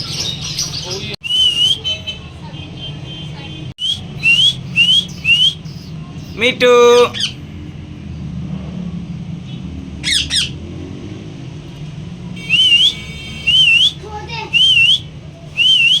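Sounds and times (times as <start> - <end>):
bird squawking: 3.8 - 7.4, 10.0 - 10.6, 12.4 - 14.0
bird whistling wavy note: 12.4 - 13.9.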